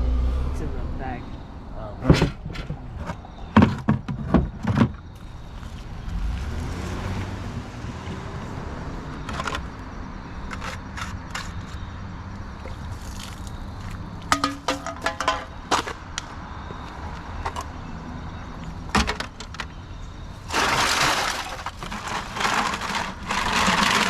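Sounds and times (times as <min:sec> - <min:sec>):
vehicle passing rumble: 0:00.0 - 0:03.5, 0:05.0 - 0:24.0.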